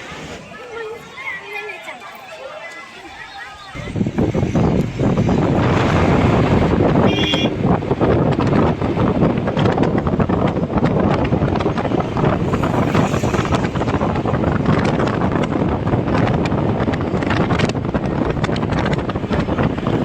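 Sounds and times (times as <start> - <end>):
wind blowing across microphone: 3.0 - 20.0.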